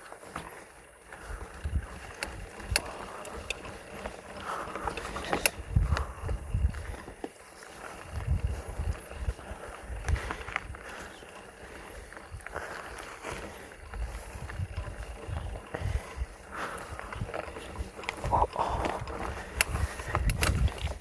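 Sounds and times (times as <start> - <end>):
bike clicks and knocks: 0.0 - 21.0
bike tyres rumbling on dirt: 0.0 - 21.0.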